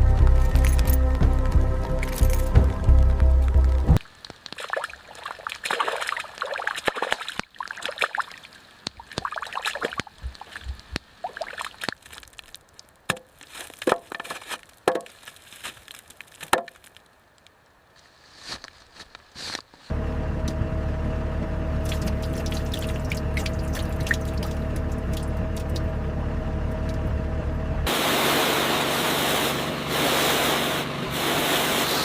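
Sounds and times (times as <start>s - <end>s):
background music: 0.0s - 4.0s
water sloshing and splashing: 4.0s - 14.6s, 21.8s - 26.0s.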